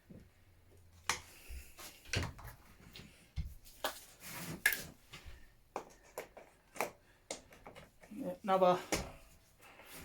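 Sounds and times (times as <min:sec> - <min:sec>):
rustling scrape: 0:04.0 - 0:05.0.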